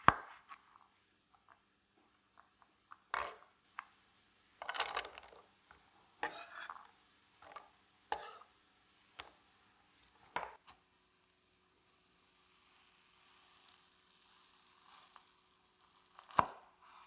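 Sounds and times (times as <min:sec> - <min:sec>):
dishes scraping: 0:04.6 - 0:05.4, 0:06.2 - 0:08.5.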